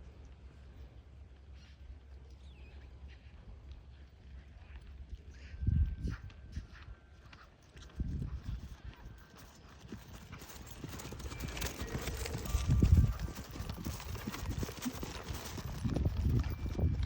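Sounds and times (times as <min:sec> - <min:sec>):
horse hoofbeats: 0:06.0 - 0:17.0.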